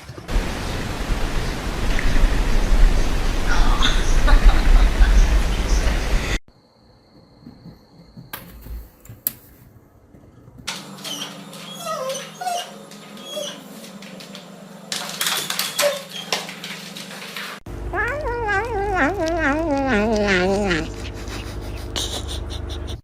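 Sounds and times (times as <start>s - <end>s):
dog whimpering: 11.1s - 13.7s, 17.9s - 23.0s.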